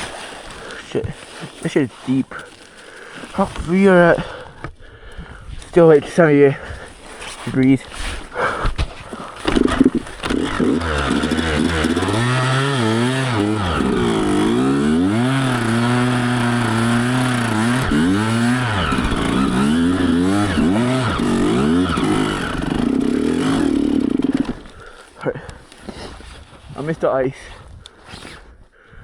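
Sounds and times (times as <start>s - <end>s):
dirt bike engine revving: 9.4s - 24.8s.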